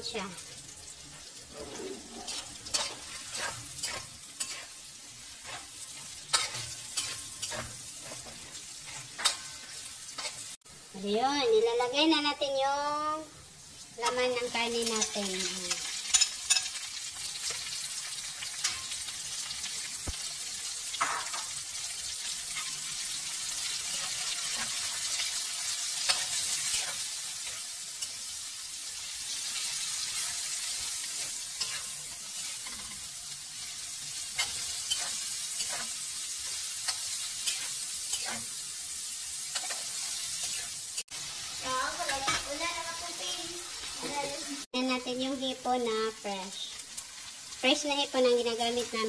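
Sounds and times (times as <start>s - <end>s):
meat sizzling in a wok: 0.0s - 49.0s
metal spatula scraping wok: 0.5s - 10.6s, 22.2s - 28.3s, 29.2s - 41.1s.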